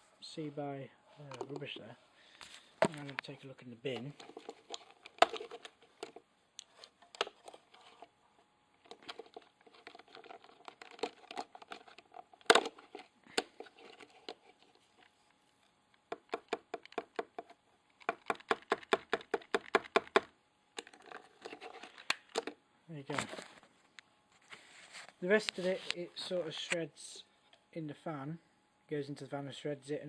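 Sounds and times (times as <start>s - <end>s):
plastic crinkling: 8.8s - 15.1s.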